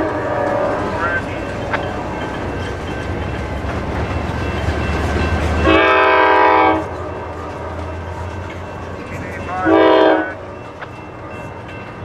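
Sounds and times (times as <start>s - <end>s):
locomotive air horn: 0.0s - 1.0s, 5.6s - 7.8s, 9.6s - 10.4s
train rumbling: 0.0s - 12.0s.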